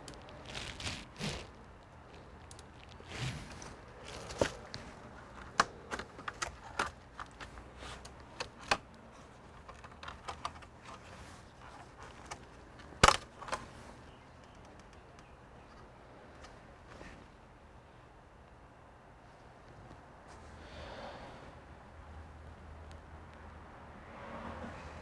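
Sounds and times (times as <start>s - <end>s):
clicks and taps of small parts: 9.5s - 13.7s.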